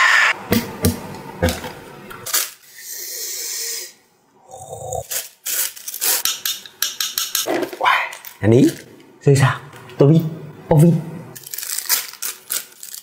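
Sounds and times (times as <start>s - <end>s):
plastic rustling: 5.0s - 6.2s, 11.4s - 13.0s.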